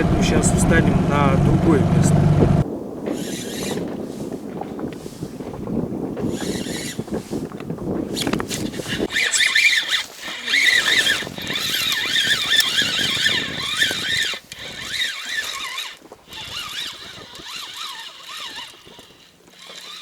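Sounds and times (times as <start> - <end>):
outboard motor running: 0.0 - 2.6, 5.8 - 20.0.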